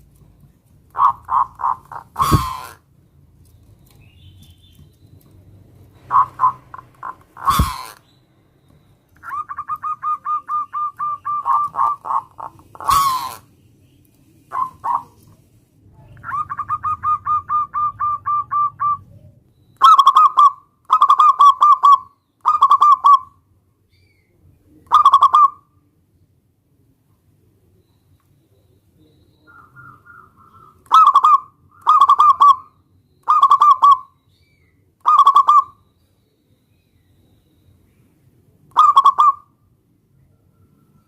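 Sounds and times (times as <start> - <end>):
dove cooing: 0.9 - 2.8, 5.9 - 8.0, 9.2 - 13.4, 14.5 - 15.2, 16.2 - 23.3, 24.9 - 25.6, 29.4 - 34.1, 35.0 - 35.8, 38.7 - 39.5.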